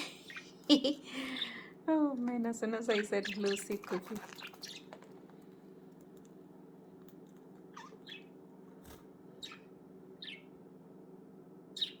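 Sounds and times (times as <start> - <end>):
steady low hum: 0.0 - 12.0
budgerigar chirping: 0.2 - 0.6, 2.9 - 5.0, 7.7 - 8.4, 9.4 - 10.5, 11.8 - 12.0.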